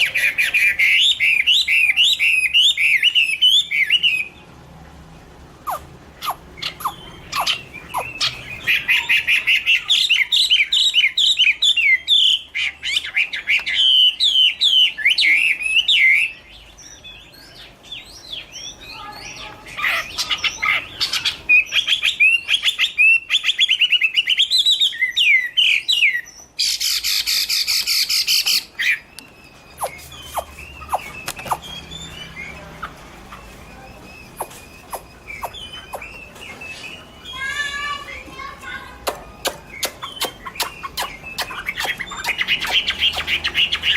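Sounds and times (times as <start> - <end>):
bird singing whistled notes: 20.2 - 38.2.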